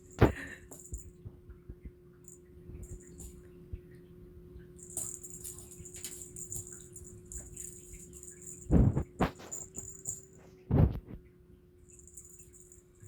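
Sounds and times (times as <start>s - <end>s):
cat wand toy swishing: 4.8s - 10.5s.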